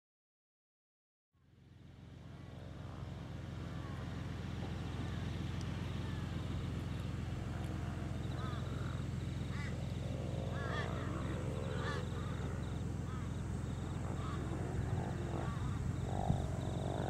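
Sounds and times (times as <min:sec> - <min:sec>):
bird calls: 0:03.6 - 0:17.0.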